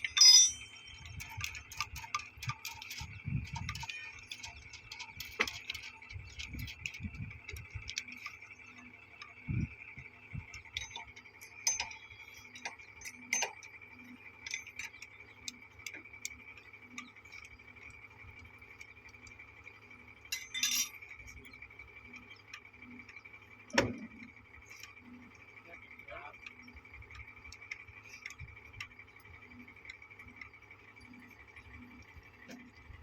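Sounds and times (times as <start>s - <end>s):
steady high-pitched tone: 0.0s - 1.8s
metal tools clicking and clinking: 0.0s - 9.4s, 10.5s - 13.8s, 14.4s - 16.4s, 20.3s - 21.6s.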